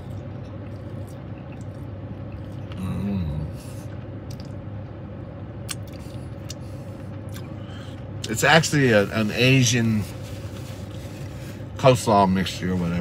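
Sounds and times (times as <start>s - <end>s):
man chewing food: 0.0s - 5.0s, 5.6s - 8.0s
steady low hum: 0.0s - 13.0s
man humming: 2.7s - 3.6s.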